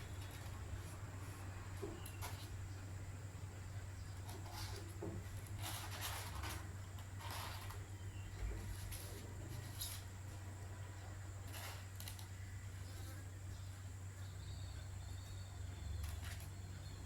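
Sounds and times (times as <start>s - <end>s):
steady low hum: 0.0s - 17.0s
soft rubbing and scraping: 4.2s - 12.2s.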